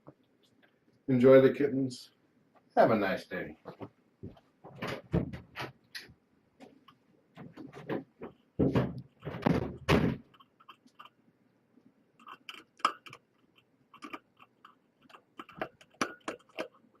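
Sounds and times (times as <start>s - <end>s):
kittens thumping: 7.4s - 10.4s.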